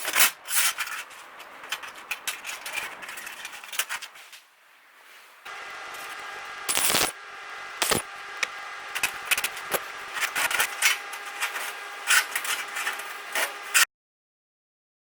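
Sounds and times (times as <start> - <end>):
machine hum: 5.5 - 13.8
rasping crackling on steel: 5.5 - 13.8.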